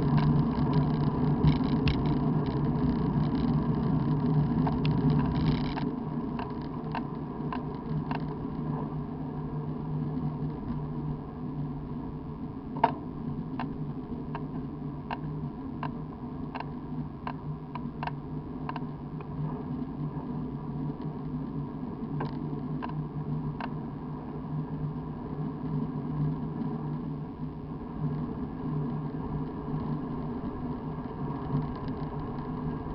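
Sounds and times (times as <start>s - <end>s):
bike clicks and ticks: 0.0s - 8.4s, 13.6s - 19.3s, 29.4s - 32.8s
bike tyres rumbling on wet road: 0.0s - 16.7s, 17.4s - 32.9s.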